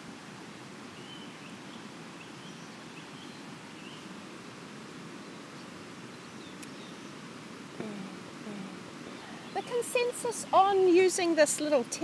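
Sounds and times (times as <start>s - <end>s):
river rushing: 0.0s - 12.0s
faint bird chirps: 0.9s - 4.2s, 5.2s - 7.2s, 7.8s - 10.8s.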